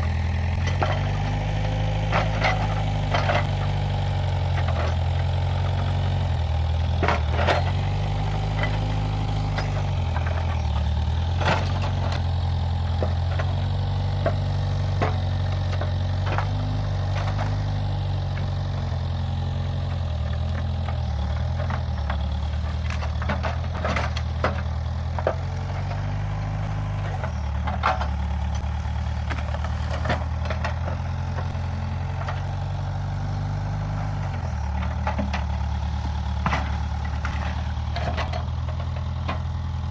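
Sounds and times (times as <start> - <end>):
diesel engine running: 0.0 - 39.9
sharp cracks and knocks: 34.8 - 39.4.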